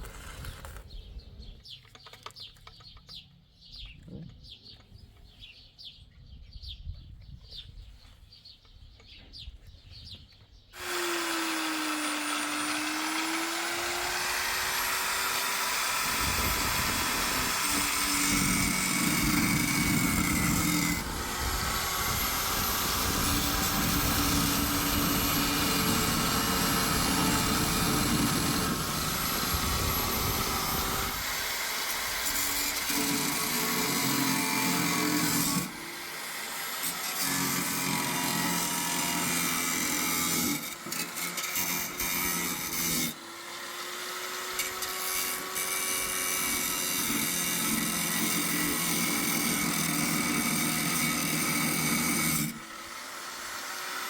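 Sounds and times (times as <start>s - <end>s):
power tool grinding with whine: 10.8s - 54.0s.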